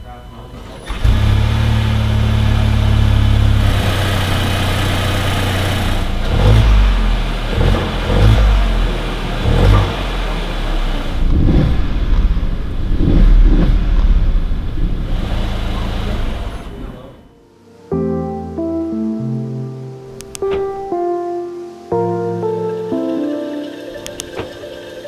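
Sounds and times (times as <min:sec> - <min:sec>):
car engine idling and revving: 0:00.0 - 0:17.2.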